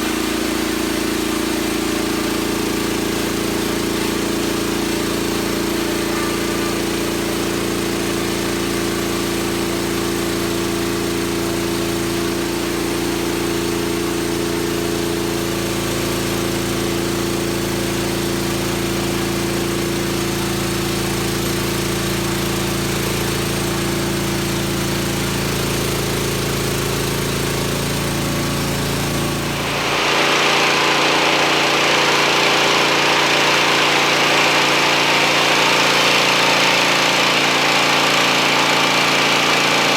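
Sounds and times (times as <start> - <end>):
bandsaw mill running: 0.0 - 39.9
loud high-pitched sawing noise: 28.0 - 39.9.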